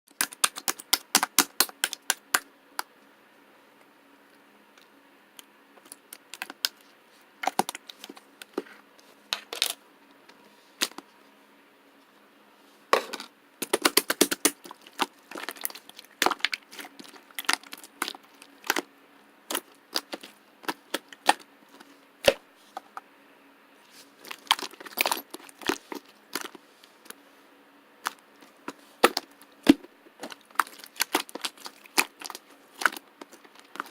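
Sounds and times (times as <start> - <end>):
slime clicking and popping: 0.1 - 2.4, 13.6 - 16.6.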